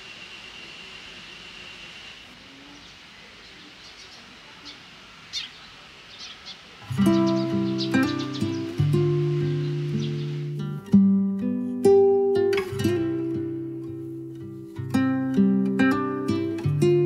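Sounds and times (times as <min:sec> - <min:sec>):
short bird chirps: 0:03.8 - 0:10.6
strummed acoustic guitar music: 0:06.8 - 0:17.0.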